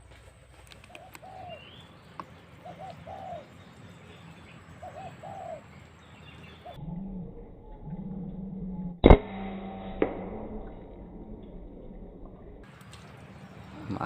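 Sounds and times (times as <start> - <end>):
dove cooing: 0.8 - 1.8, 2.6 - 3.6, 4.8 - 5.8.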